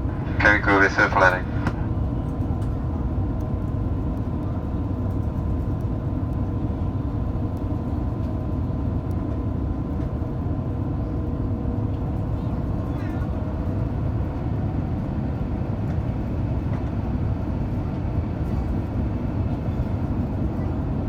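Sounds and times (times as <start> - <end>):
faint steady hums: 0.0 - 2.2
airliner cabin rumble: 0.0 - 21.0.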